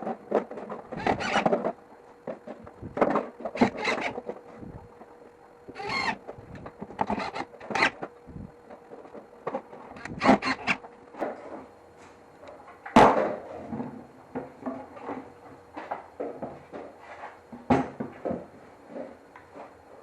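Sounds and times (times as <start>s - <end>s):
faint steady hum: 0.0s - 20.0s
scraping strokes on wood: 3.4s - 4.4s.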